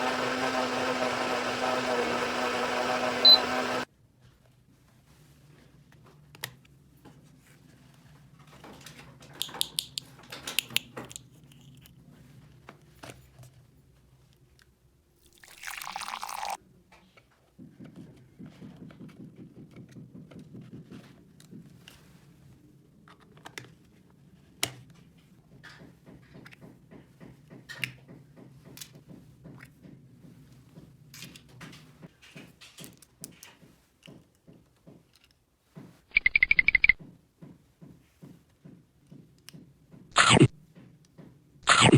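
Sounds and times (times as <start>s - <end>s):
short noisy burst: 40.2s - 40.5s, 41.7s - 41.9s.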